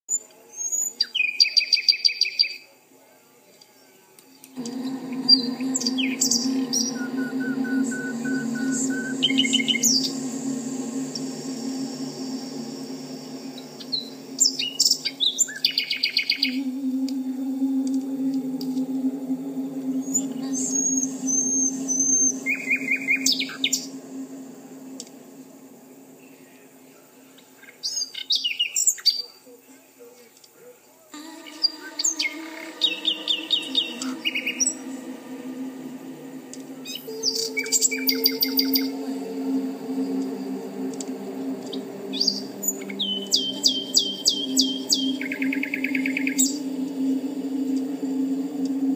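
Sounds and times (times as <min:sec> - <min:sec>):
low steady droning tones: 0:04.4 - 0:28.2, 0:31.2 - 0:48.9
steady low hum: 0:04.4 - 0:28.2, 0:31.2 - 0:48.9
songbird chirping and trilling: 0:31.2 - 0:48.9.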